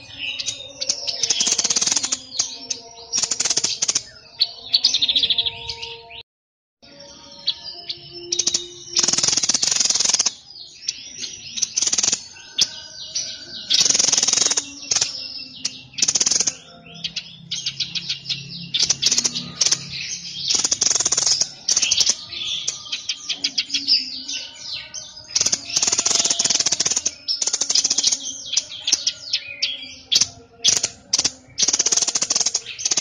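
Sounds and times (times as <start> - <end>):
songbird chattering song: 0.0 - 6.2, 6.8 - 33.0.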